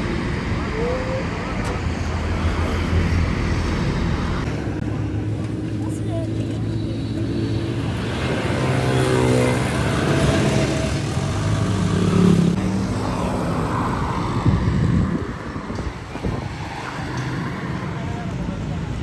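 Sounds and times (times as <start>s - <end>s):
vehicle engines running: 0.0s - 19.0s
vehicle passing by: 6.3s - 19.0s.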